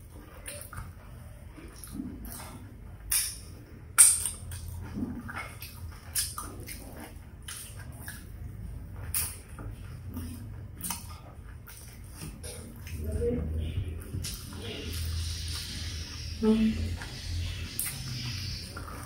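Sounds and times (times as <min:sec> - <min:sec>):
chewing and mouth smacks: 0:00.0 - 0:16.3, 0:16.9 - 0:19.0
sharp mouth clicks: 0:01.8 - 0:03.4, 0:04.0 - 0:08.3, 0:09.0 - 0:13.0.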